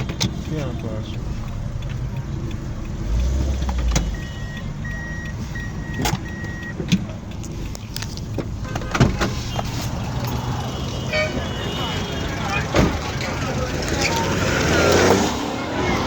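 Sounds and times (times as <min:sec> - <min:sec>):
car engines rumbling: 0:00.0 - 0:16.0
heavy vehicle engine: 0:00.0 - 0:16.0
short electronic beeps: 0:04.1 - 0:06.7.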